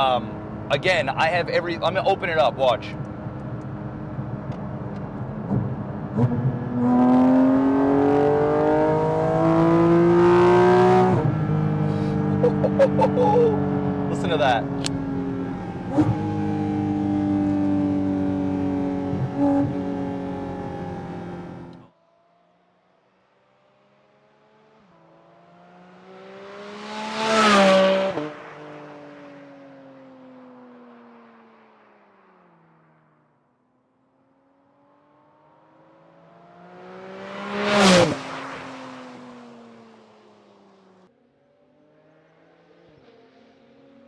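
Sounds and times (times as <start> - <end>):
distant car: 0.0 - 44.0
sports car driving past: 3.0 - 21.8, 24.1 - 33.0, 34.8 - 40.9
sports car engine revving hard: 5.5 - 21.8.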